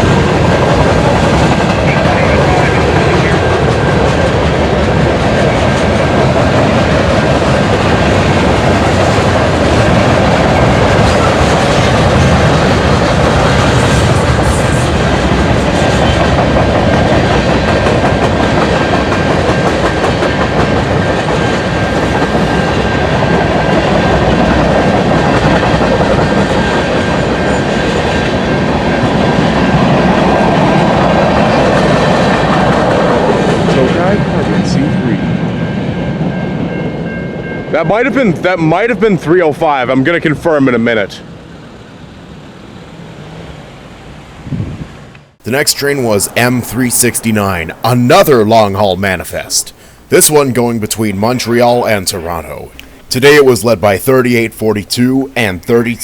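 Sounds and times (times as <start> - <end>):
freight train cars rolling: 0.0 - 36.8, 37.6 - 56.0.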